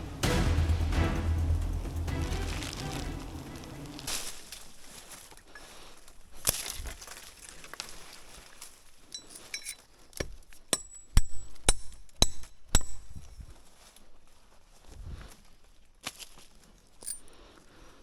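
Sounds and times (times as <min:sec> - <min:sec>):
sharp metallic strikes: 0:00.0 - 0:04.5.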